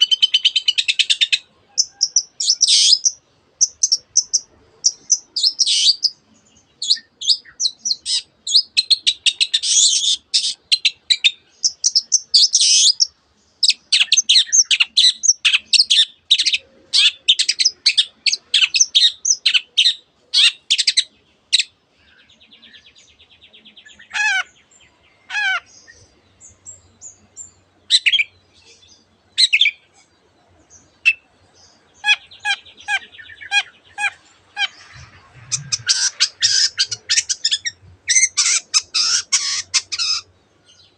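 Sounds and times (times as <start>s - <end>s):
buzzy bird trill: 0.0s - 6.2s, 31.0s - 40.3s.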